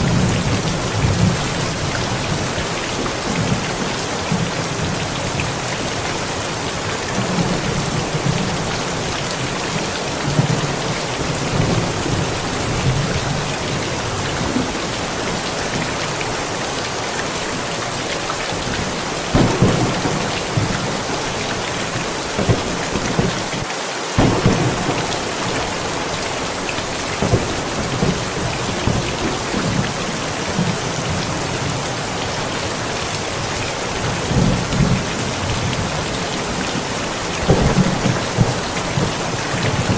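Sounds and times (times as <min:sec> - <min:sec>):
heavy rain: 0:00.0 - 0:39.9
thunder rumbling: 0:18.3 - 0:23.6, 0:24.2 - 0:31.8, 0:33.3 - 0:39.9
sharp thunder claps: 0:18.6 - 0:31.2, 0:37.3 - 0:39.9.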